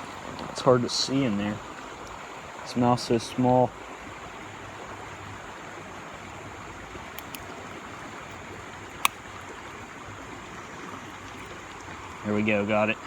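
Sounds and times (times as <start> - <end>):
clicks: 7.1 - 7.5.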